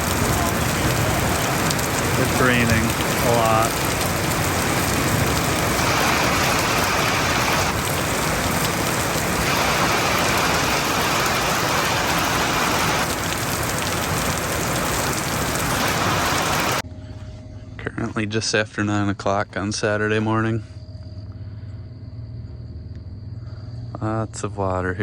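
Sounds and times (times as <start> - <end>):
heavy rain pouring: 0.0 - 16.8.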